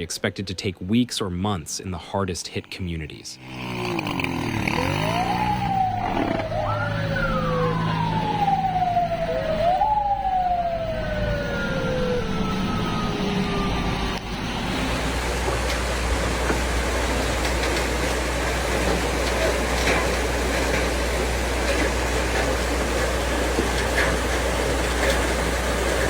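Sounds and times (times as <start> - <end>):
siren wailing: 4.3 - 15.2, 18.3 - 26.0.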